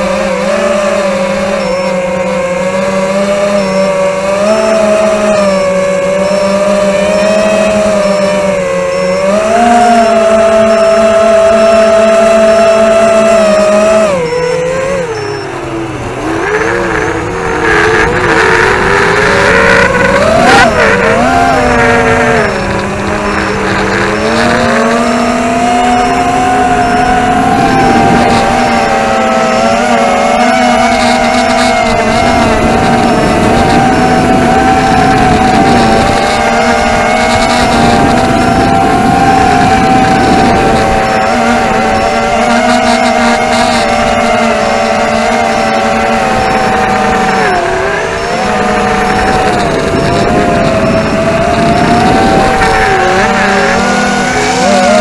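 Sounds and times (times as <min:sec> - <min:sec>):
drone motors whining: 0:00.0 - 0:55.0
wind rushing: 0:46.0 - 0:55.0.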